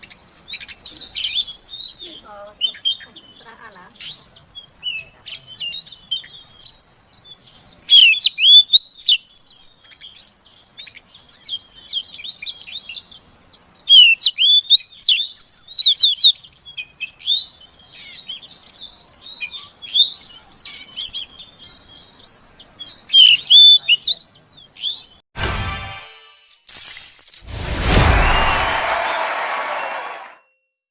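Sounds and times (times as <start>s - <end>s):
bird whistling and chattering: 7.9s - 9.7s, 13.9s - 16.3s, 23.0s - 24.2s
burst of noise: 27.5s - 30.2s.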